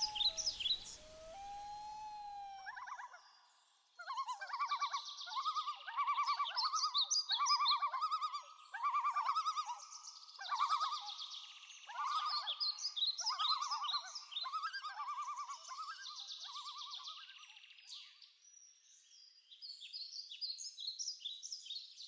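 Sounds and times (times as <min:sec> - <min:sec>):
flamingos honking: 0:00.0 - 0:02.6
higher bird calls: 0:00.0 - 0:03.1.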